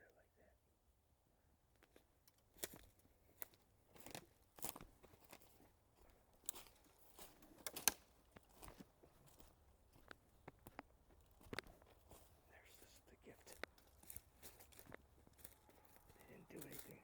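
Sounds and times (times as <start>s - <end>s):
crisp crunches and crackles: 1.8s - 17.0s.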